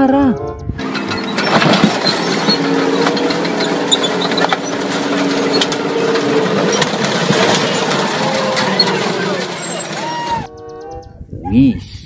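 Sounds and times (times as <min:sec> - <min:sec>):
tank engine droning: 0:00.4 - 0:11.2
car body cracking and crunching: 0:00.9 - 0:10.0.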